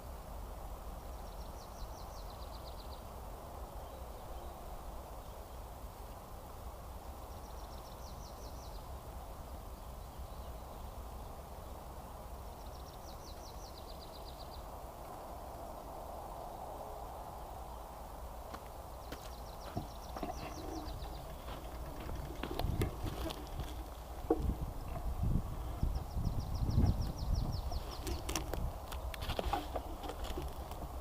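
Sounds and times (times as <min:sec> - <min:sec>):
songbird trilling: 0:19.2 - 0:28.4.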